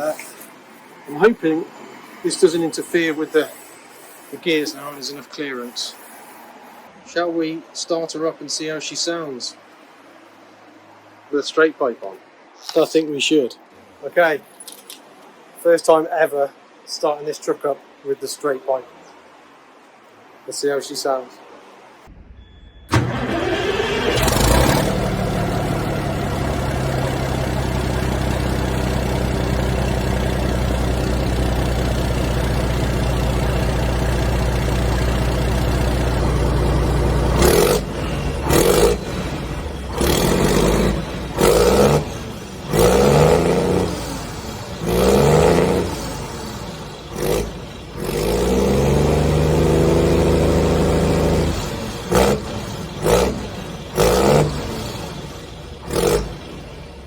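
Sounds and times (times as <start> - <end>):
diesel truck engine idling and revving: 22.9 - 57.0.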